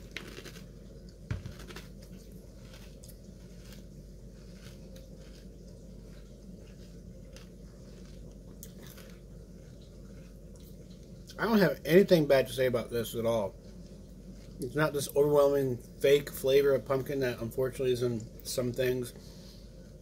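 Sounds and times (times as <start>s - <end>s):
person chewing crunchy cereal: 0.0s - 11.4s
low hum: 0.0s - 20.0s.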